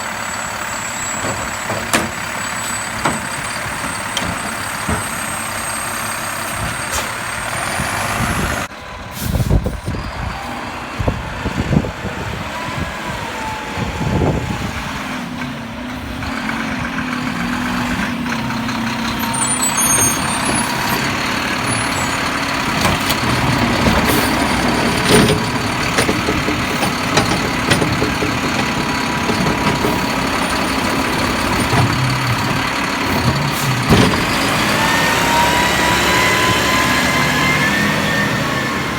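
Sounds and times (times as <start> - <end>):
garbage truck engine running: 0.0 - 38.9
knocks and clanks: 1.2 - 5.4, 20.0 - 37.1.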